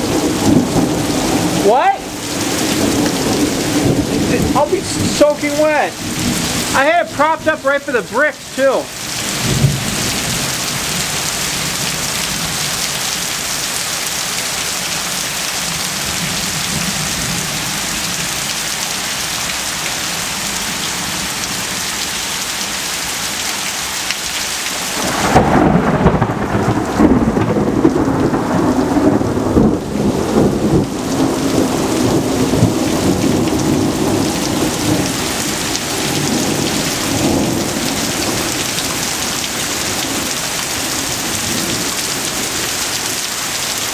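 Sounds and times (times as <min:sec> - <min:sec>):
thunder rumbling: 0:00.0 - 0:08.2, 0:08.8 - 0:12.9, 0:24.9 - 0:42.8
heavy rain pouring: 0:00.0 - 0:43.9.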